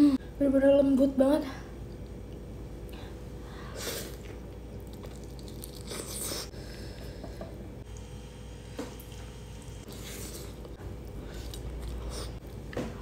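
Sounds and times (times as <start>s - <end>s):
person chewing food: 4.0s - 7.4s, 9.0s - 12.8s.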